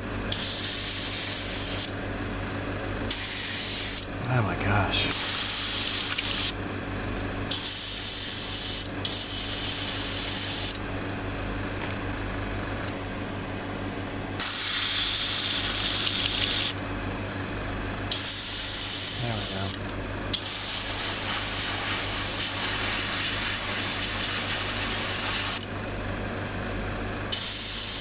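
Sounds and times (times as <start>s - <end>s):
steady low hum: 0.0s - 28.0s
airbrush spraying hiss: 0.3s - 1.9s, 3.1s - 4.0s, 7.5s - 10.8s, 20.4s - 25.6s.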